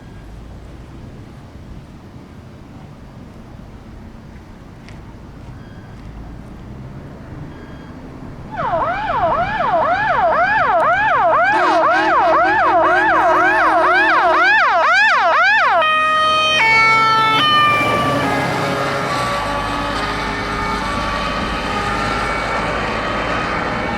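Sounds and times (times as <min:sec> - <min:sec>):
emergency vehicle siren yelping: 0:07.4 - 0:23.9
second siren yelp: 0:07.8 - 0:23.9.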